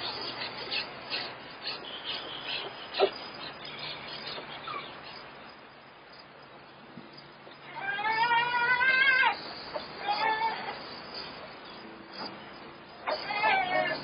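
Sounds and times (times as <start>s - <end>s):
puppies squeaking: 0.0s - 5.3s, 7.7s - 11.4s, 13.0s - 14.0s.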